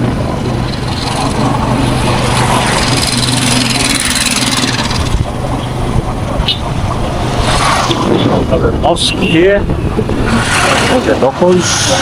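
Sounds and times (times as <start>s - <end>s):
road and wind rush: 0.0s - 12.0s
vehicle engine running: 0.0s - 12.0s.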